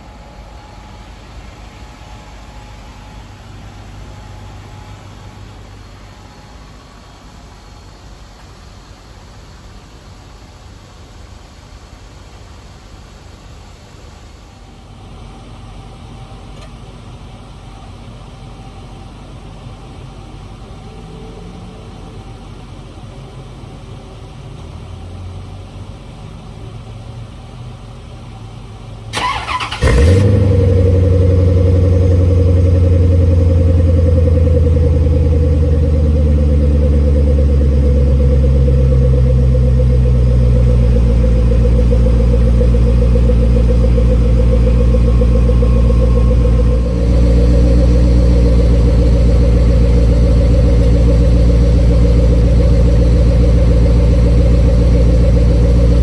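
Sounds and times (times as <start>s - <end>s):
car engine idling: 0.0s - 8.7s, 15.5s - 56.0s
starter motor cranking: 29.2s - 32.3s.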